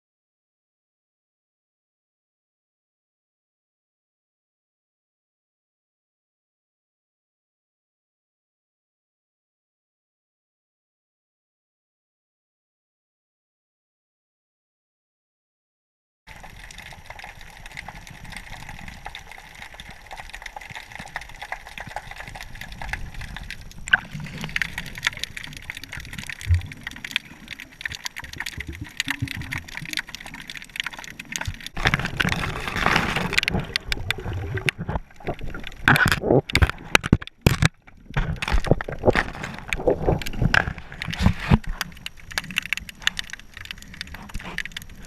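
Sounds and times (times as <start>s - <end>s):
water sloshing and gurgling: 16.3s - 45.0s.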